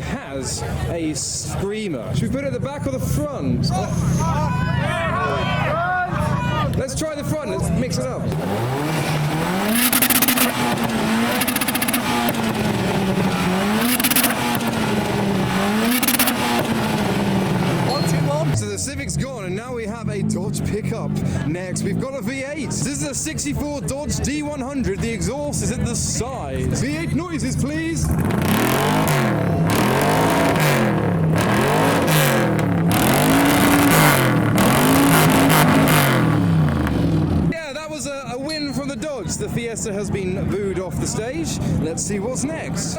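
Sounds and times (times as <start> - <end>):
car engine revving: 6.7 - 37.6
exhaust crackle: 6.8 - 21.4, 24.7 - 37.6.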